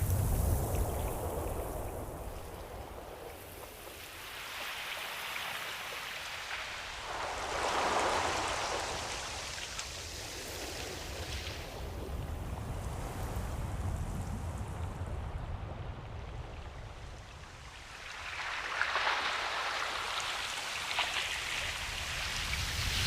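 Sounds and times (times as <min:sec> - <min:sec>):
ocean waves surf: 0:00.0 - 0:23.0.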